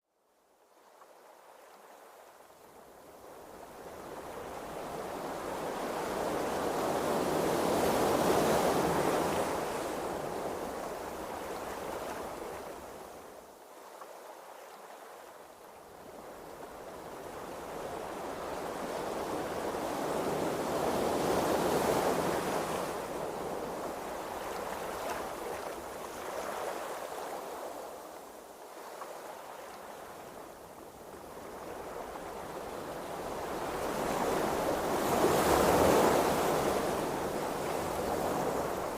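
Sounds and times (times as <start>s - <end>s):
ocean waves washing: 16.2s - 38.9s.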